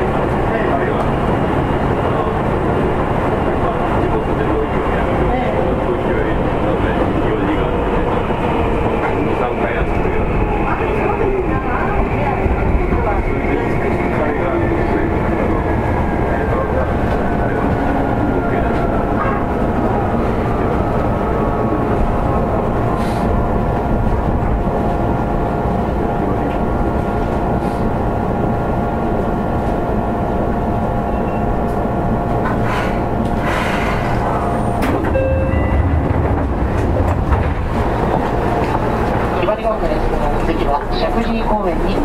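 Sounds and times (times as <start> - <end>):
train wheels rumbling on rail: 0.0 - 42.0
electric train whining tones: 34.2 - 37.6.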